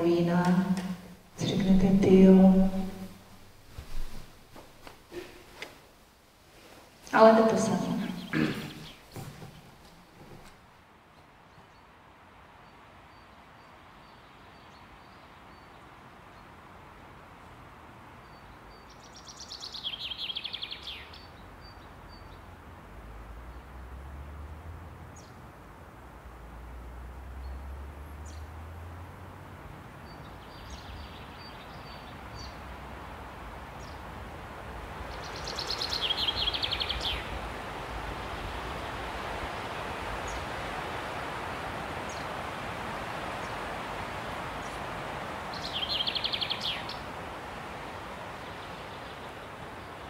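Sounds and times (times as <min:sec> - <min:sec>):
steady rushing noise: 0:00.0 - 0:10.6, 0:31.7 - 0:50.0.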